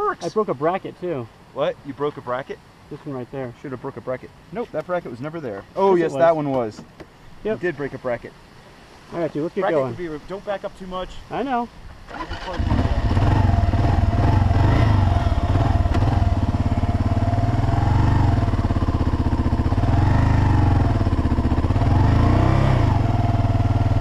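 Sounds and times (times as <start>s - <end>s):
motorcycle engine revving: 12.1s - 24.0s.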